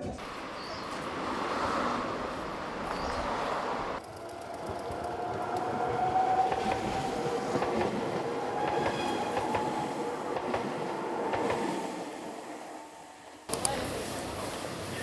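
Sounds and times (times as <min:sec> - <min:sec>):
wheels clicking over track: 0:00.2 - 0:09.8
electric train whine: 0:00.2 - 0:15.0.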